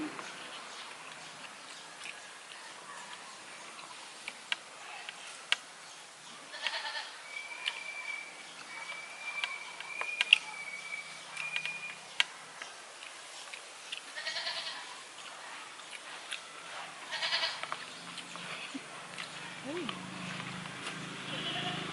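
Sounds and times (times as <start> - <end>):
sharp clicks: 11.4 - 12.3
goats bleating hoarsely: 14.2 - 14.8, 17.1 - 17.6, 21.3 - 21.9.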